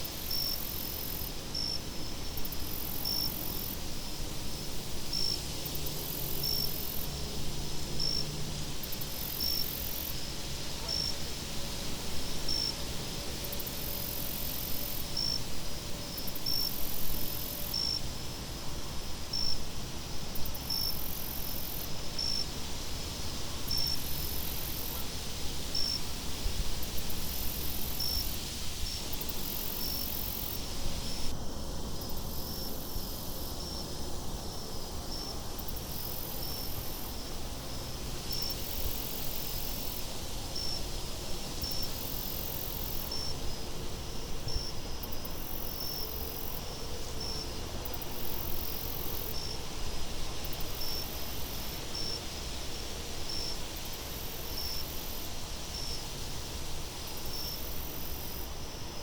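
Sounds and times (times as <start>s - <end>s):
high insect trill: 0.0s - 7.2s, 26.7s - 59.0s
night insects chirping: 0.0s - 59.0s.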